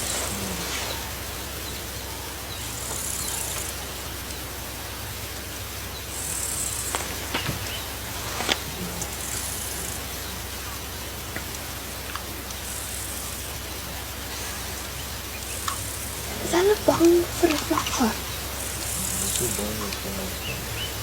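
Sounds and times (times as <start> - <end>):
insects buzzing: 0.0 - 21.0
low background hum: 0.0 - 21.0
sharp clicks: 15.5 - 16.2.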